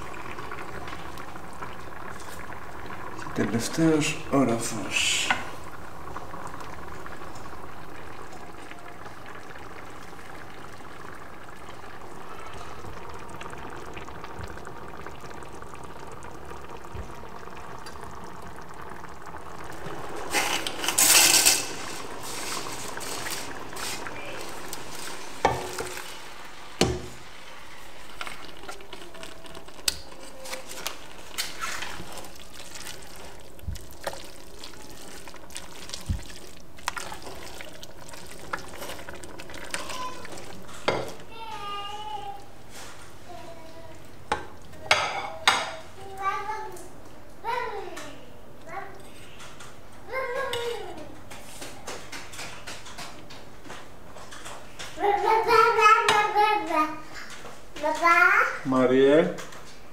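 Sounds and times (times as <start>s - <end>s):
sauce simmering and bubbling: 0.0s - 59.8s
spatula stirring in pot: 20.1s - 41.6s.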